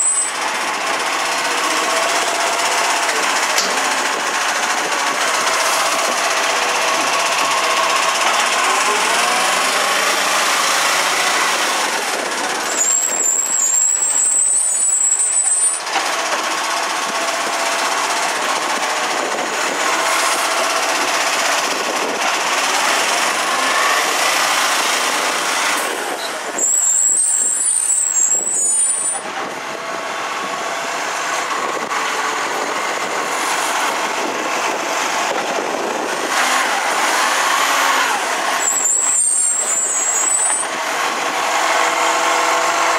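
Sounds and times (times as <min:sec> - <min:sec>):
garbage truck engine and hydraulics whine: 0:00.0 - 0:42.9
thin high whistle: 0:12.7 - 0:15.8, 0:26.6 - 0:29.2.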